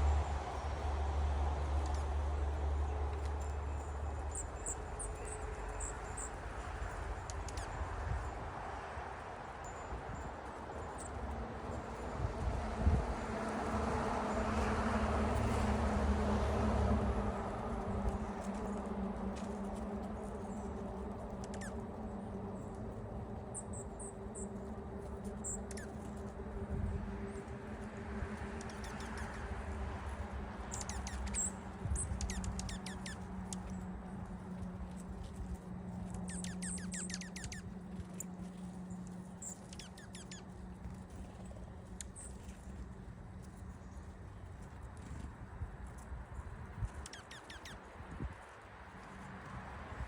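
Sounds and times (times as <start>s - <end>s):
small birds chirping: 20.2s - 22.8s, 23.4s - 26.3s, 28.4s - 45.2s, 46.3s - 47.9s.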